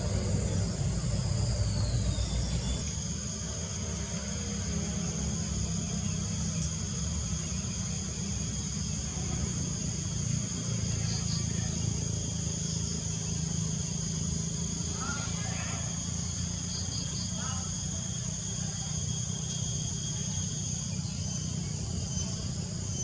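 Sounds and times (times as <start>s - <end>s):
low rumble: 0.0s - 4.4s
insects droning: 0.0s - 23.0s.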